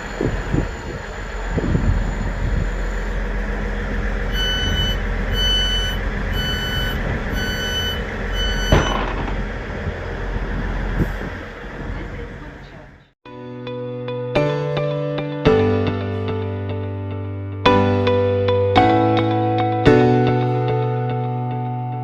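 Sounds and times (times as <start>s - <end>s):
diesel train rumble: 0.0s - 13.2s
door warning beeps: 4.3s - 9.1s
door thump: 8.6s - 9.5s.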